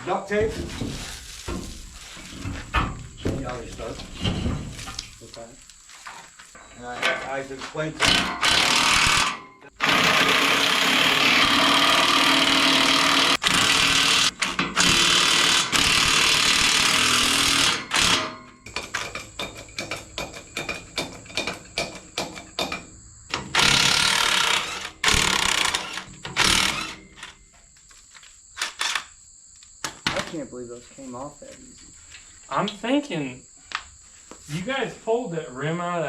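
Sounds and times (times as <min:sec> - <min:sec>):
impact wrench hammering: 0:08.0 - 0:27.3.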